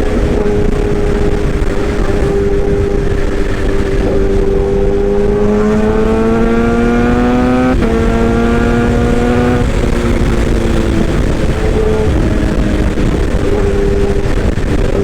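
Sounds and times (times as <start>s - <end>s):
humming whine rising in pitch: 0.0s - 15.0s.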